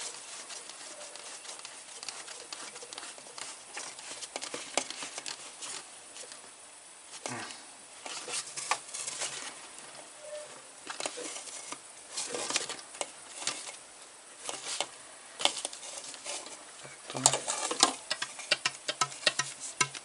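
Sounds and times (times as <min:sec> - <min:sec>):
plastic parts clicking and rustling: 0:00.0 - 0:06.4, 0:10.9 - 0:13.8, 0:14.4 - 0:20.0.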